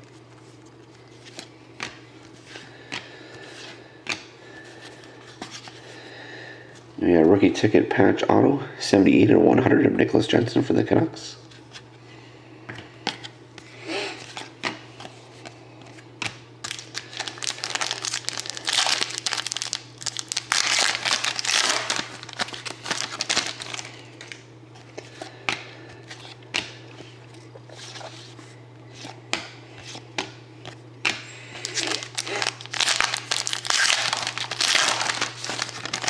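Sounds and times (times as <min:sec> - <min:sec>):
foil wrappers crinkling: 0:16.6 - 0:24.4, 0:31.6 - 0:36.0.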